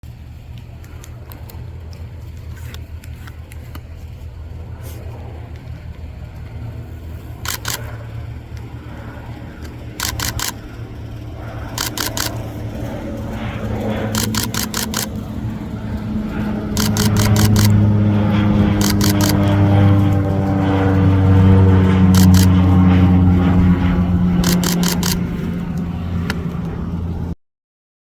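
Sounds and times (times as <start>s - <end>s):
turboprop engine droning: 0.0s - 27.4s
higher hum: 0.2s - 27.4s
camera shutter clicks: 7.4s - 7.9s, 10.0s - 10.6s, 11.8s - 12.4s, 14.1s - 15.1s, 16.8s - 17.8s, 18.8s - 19.4s, 22.2s - 22.5s, 24.4s - 25.2s.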